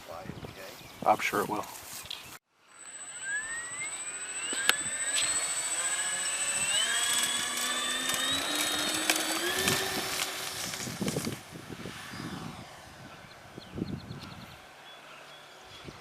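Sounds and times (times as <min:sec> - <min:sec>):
steady high whine: 0:02.5 - 0:13.6
electric model plane motors whining: 0:02.6 - 0:14.6
sharp clicks: 0:02.8 - 0:11.4.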